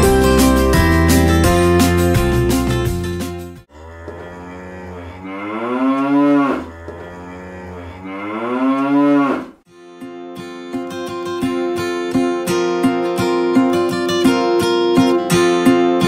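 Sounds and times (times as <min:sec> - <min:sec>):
cow mooing: 0:03.7 - 0:09.6
strummed acoustic guitar music: 0:09.7 - 0:16.0.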